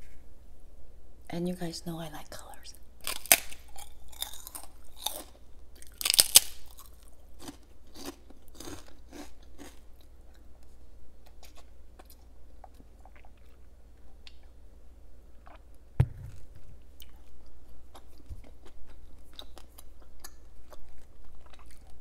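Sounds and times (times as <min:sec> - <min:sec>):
crackers crunching while chewed: 0:03.0 - 0:14.6, 0:16.6 - 0:22.0.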